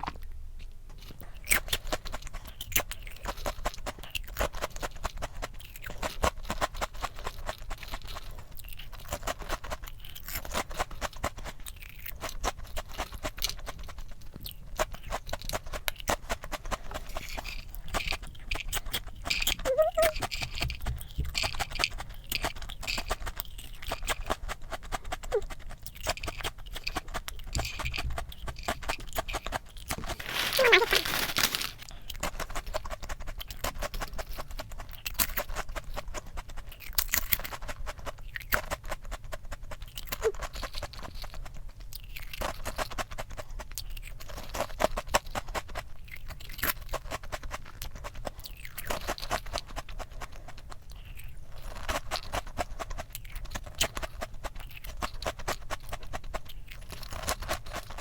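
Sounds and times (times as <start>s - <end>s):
crunching crispy snacks: 1.0s - 58.0s.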